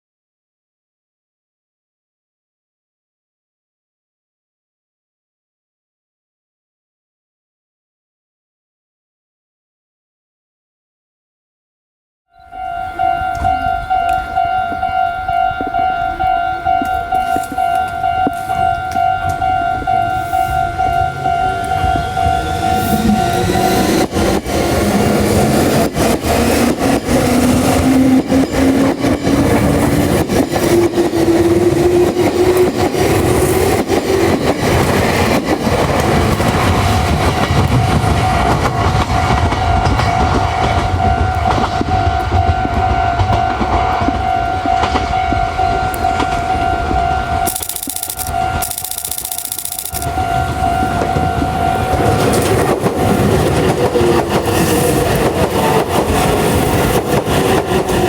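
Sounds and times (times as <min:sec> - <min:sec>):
level-crossing bell ringing: 0:12.4 - 0:24.4, 0:37.3 - 0:52.6
electric train motors whining: 0:16.0 - 0:34.3, 0:45.9 - 0:58.0
wheels clicking over rail joints: 0:47.4 - 0:58.0.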